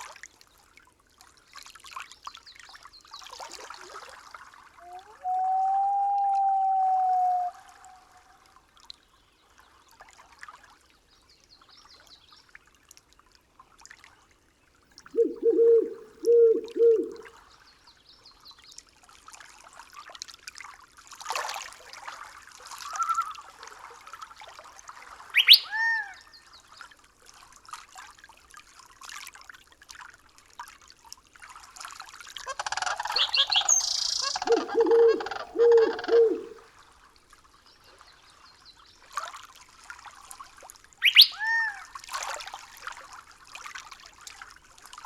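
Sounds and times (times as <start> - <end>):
faint trickle of water: 0.0 - 45.0
low calls: 4.8 - 8.0, 15.2 - 17.3, 32.5 - 36.6, 41.0 - 41.7
bird calls: 15.1 - 17.3, 25.4 - 26.2, 32.5 - 36.6, 41.0 - 41.8.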